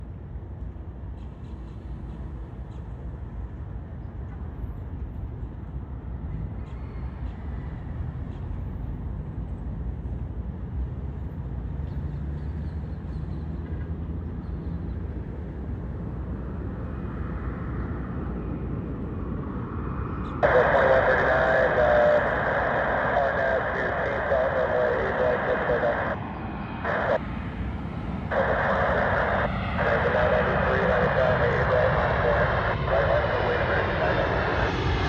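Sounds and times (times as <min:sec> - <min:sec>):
distant jet airliner rumble: 0:00.8 - 0:35.0
faint rising whine: 0:19.7 - 0:35.0.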